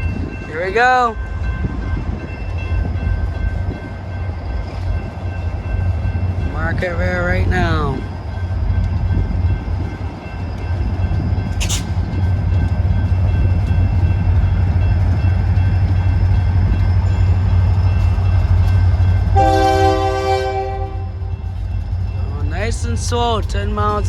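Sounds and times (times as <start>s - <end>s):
diesel locomotive rumbling: 0.0s - 24.0s
sharp clank: 11.6s - 12.0s
locomotive air horn blast: 19.4s - 21.1s.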